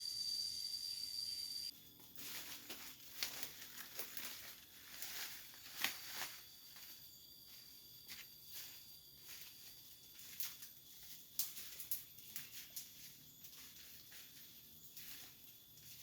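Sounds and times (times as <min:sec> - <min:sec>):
faint high insect hum: 0:00.0 - 0:16.0
rustling and crackling leaves: 0:01.9 - 0:07.0, 0:08.5 - 0:16.0.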